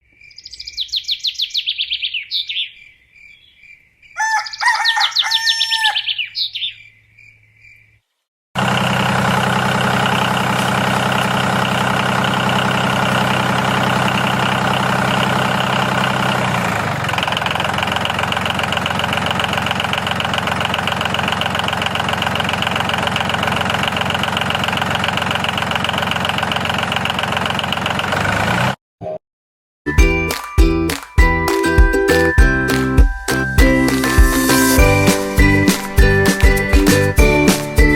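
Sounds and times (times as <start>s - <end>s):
birds chirping: 0.0s - 8.1s
small engine idling: 8.6s - 28.8s.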